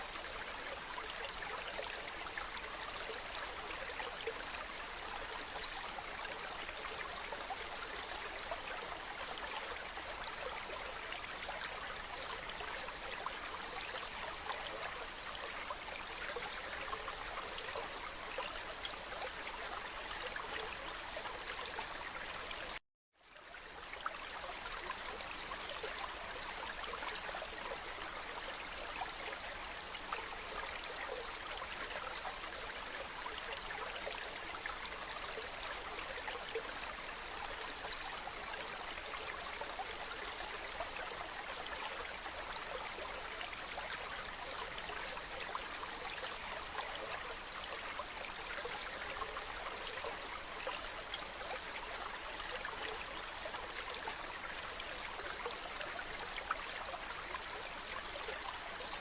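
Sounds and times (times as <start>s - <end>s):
stream water running: 0.0s - 59.0s.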